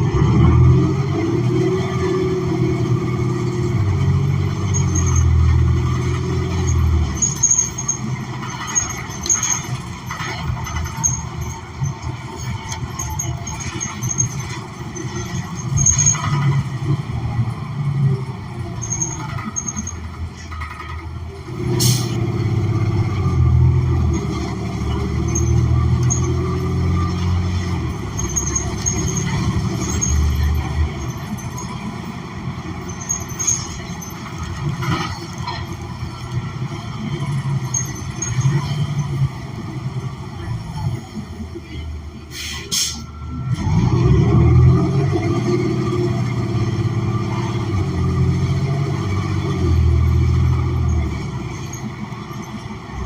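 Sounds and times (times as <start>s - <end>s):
bus engine: 0.0s - 53.0s
air brake hiss: 21.8s - 22.2s, 42.3s - 43.1s.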